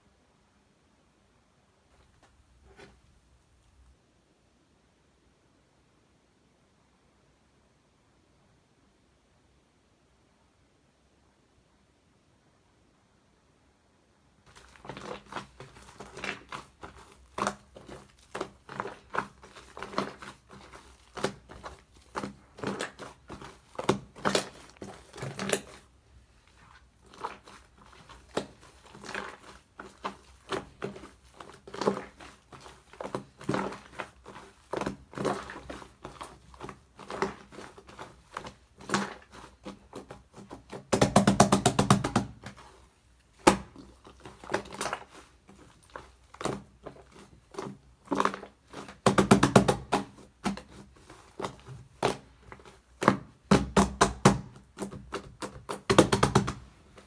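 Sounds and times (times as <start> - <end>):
slime squished by hand: 14.5 - 57.0.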